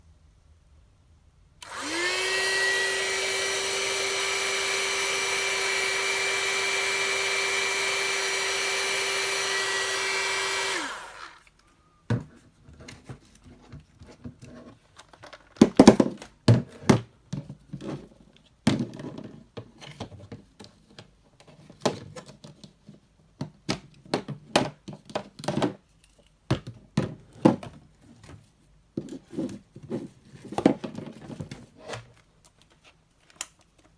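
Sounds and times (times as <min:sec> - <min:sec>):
hair dryer brush motor whine: 0:01.6 - 0:11.5
clicks and knocks of handling: 0:11.6 - 0:28.4, 0:29.0 - 0:33.9.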